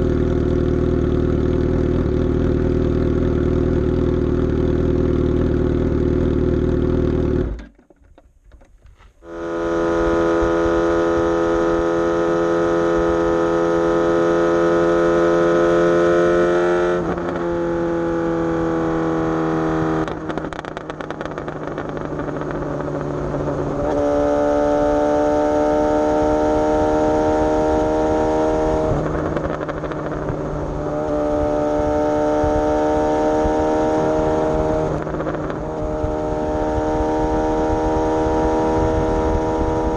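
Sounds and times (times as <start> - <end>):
motorcycle engine running: 0.0 - 8.0, 8.9 - 39.9
motorcycle gear changes: 7.1 - 9.4.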